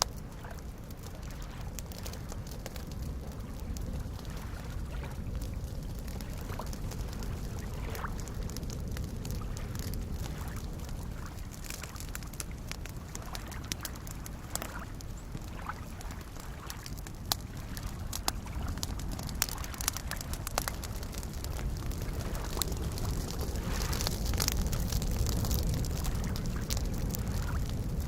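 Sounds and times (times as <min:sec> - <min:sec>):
campfire crackling and popping: 0:00.0 - 0:28.0
lake waves lapping: 0:00.3 - 0:27.7.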